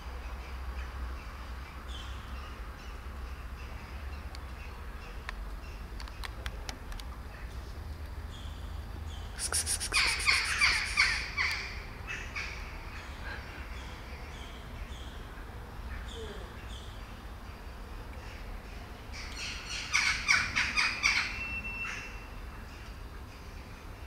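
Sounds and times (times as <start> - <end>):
birds chirping and calling: 8.3 - 15.3, 19.1 - 23.6.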